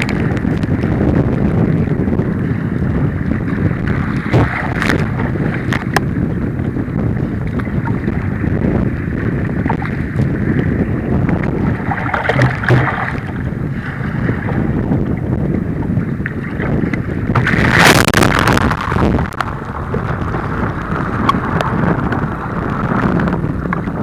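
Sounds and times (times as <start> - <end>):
wind buffeting microphone: 0.0 - 24.0
sharp water splashes: 11.8 - 13.3.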